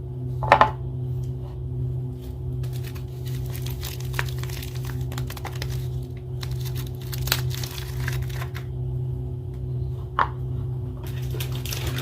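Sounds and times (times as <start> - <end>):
steady low hum: 0.0 - 12.0
wrapper crinkling and snapping: 2.6 - 8.7.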